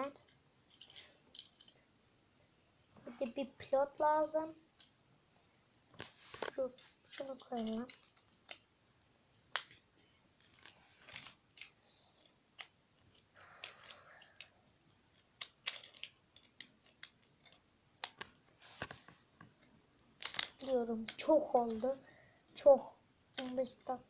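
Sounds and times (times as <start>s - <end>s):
soft rustle of pieces: 0.0s - 24.0s
plastic toy bricks clicking: 0.1s - 1.8s, 7.2s - 8.7s, 9.5s - 9.8s, 10.4s - 18.4s, 19.6s - 21.8s, 22.6s - 23.9s.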